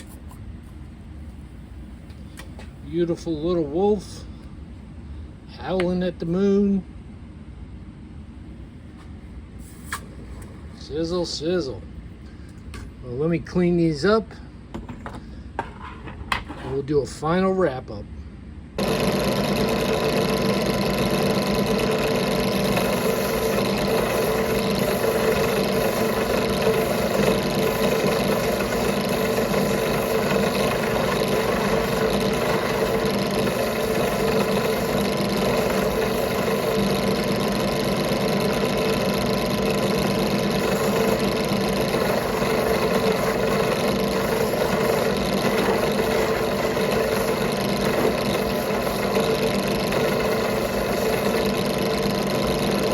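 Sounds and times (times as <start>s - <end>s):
power tool motor whining: 18.8s - 52.9s.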